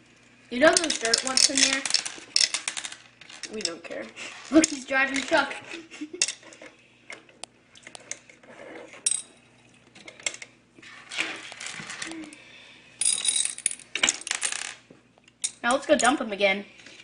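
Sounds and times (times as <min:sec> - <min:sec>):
candies clattering in toy truck: 0:00.6 - 0:05.6.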